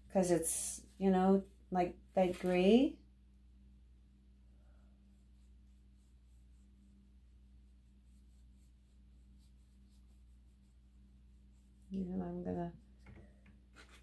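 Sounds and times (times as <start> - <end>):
paintbrush strokes: 2.2 - 2.8, 4.5 - 12.2, 13.7 - 14.0.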